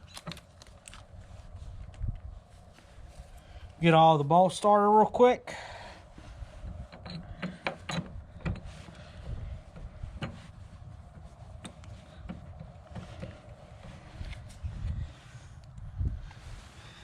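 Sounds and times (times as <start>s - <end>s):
low handling rumble: 5.7s - 17.0s.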